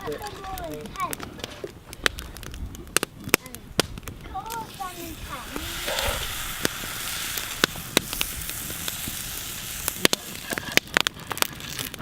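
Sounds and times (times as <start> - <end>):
campfire crackling: 0.0 - 12.0
food sizzling in a pan: 4.4 - 11.1.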